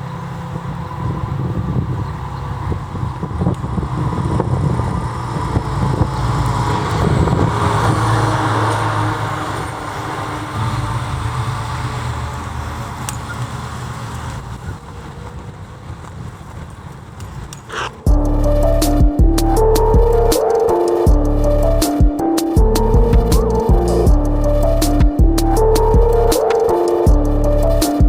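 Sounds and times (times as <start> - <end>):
emergency vehicle driving past: 0.0 - 14.8.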